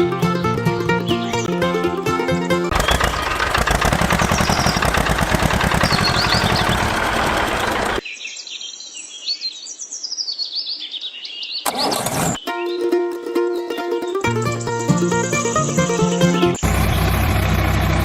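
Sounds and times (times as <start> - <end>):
birds chirping: 0.8 - 12.9, 13.5 - 18.0
small engine running: 2.6 - 8.0, 11.7 - 12.4, 15.0 - 18.0.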